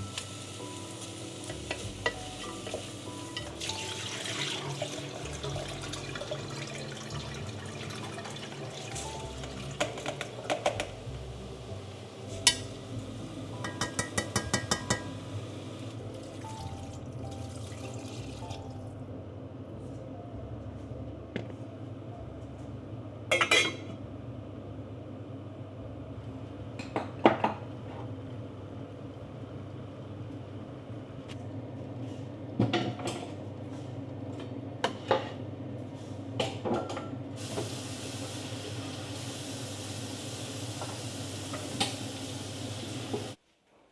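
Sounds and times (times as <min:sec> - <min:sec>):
cookware knocking: 0:13.6 - 0:15.1.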